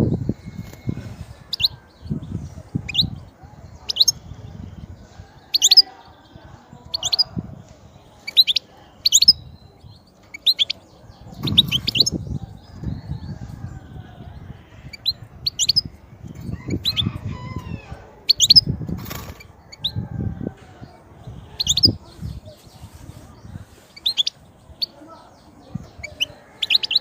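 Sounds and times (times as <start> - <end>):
finch chirping: 0.3 - 4.5, 6.8 - 7.4, 8.1 - 12.9, 14.6 - 17.6, 18.2 - 20.0, 21.3 - 27.0.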